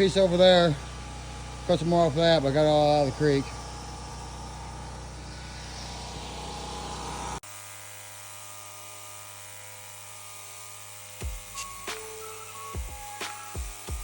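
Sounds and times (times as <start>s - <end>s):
engine running with even hum: 0.0s - 7.4s.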